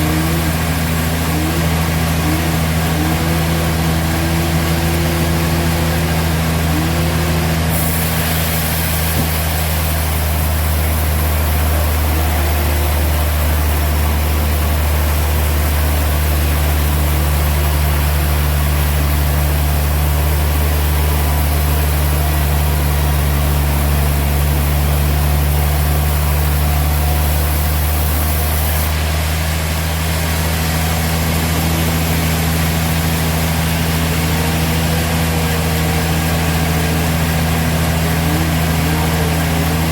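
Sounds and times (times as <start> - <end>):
high hiss: 0.0 - 29.1
sawmill machinery hum: 0.0 - 39.9.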